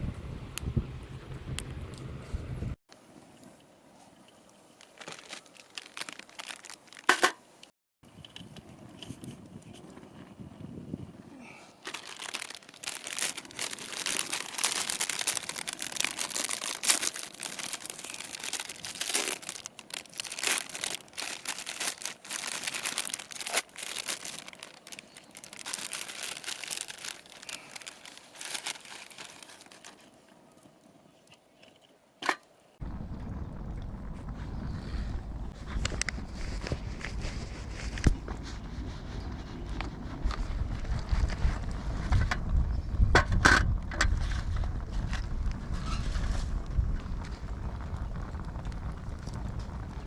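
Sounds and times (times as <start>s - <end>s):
wrapping crinkling and tearing: 4.8s - 7.1s, 11.4s - 30.7s.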